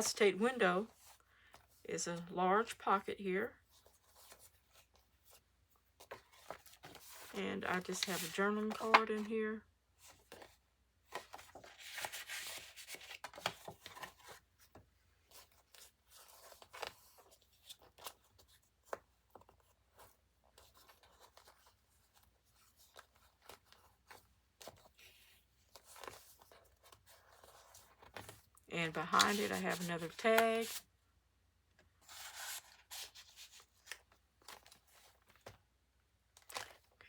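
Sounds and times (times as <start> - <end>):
paper rustling: 6.0 - 9.3, 10.0 - 30.8, 32.0 - 35.6.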